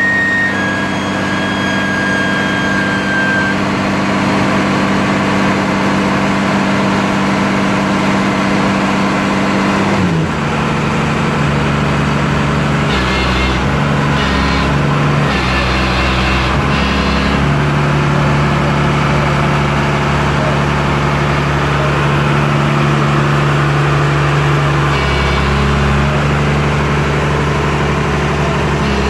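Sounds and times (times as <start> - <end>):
heavy diesel engine running: 0.0 - 29.0.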